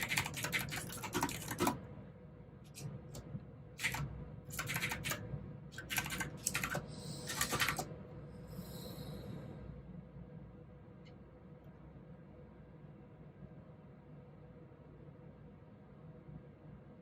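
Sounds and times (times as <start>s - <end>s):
clicky mechanical keyboard typing: 0.0s - 1.8s, 2.7s - 5.2s, 5.8s - 7.9s.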